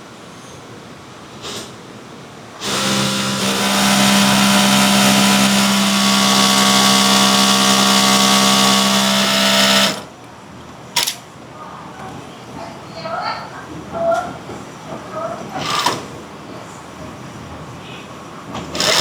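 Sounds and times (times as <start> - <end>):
machine motor humming: 2.6 - 10.1.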